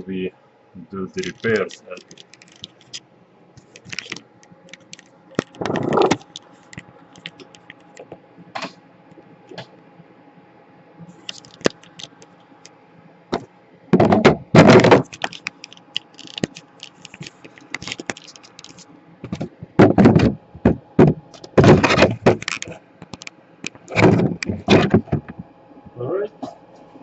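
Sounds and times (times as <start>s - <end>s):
objects clicking and clattering: 1.2s - 3.0s, 3.6s - 8.2s, 11.2s - 12.3s, 14.0s - 25.4s
knocks and thuds: 13.4s - 15.1s, 19.3s - 22.5s, 23.9s - 25.5s.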